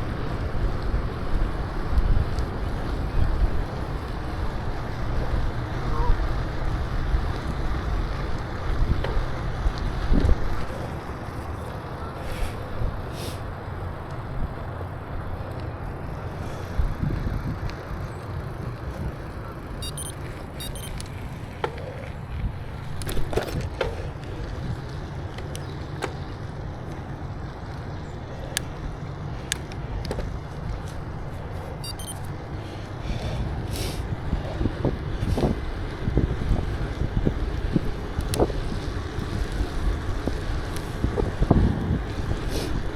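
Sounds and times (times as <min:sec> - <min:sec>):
wind buffeting microphone: 0:00.0 - 0:19.9, 0:20.5 - 0:42.9
bicycle clicks and rattles: 0:00.0 - 0:42.9
tyres rumbling on pavement: 0:00.0 - 0:42.9.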